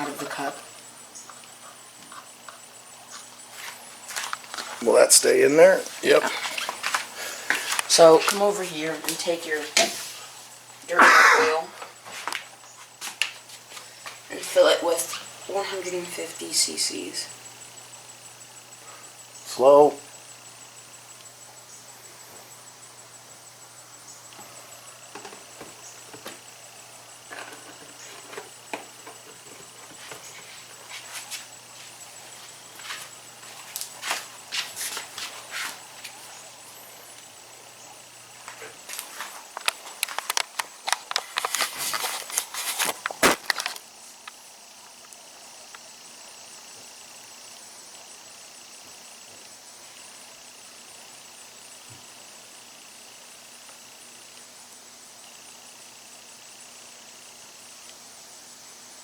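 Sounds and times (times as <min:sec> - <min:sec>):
faint steady hum: 0:00.0 - 0:59.0
hands handling parts and tools: 0:39.0 - 0:43.8.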